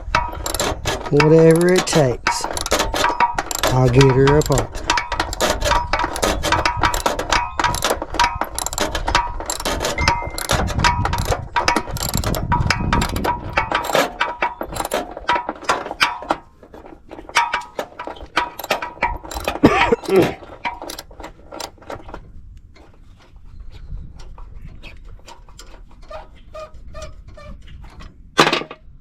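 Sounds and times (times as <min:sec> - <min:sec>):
ratchet wrench clicking: 0:00.0 - 0:15.1, 0:18.4 - 0:21.8
metal clinking: 0:00.0 - 0:16.5, 0:17.3 - 0:21.8.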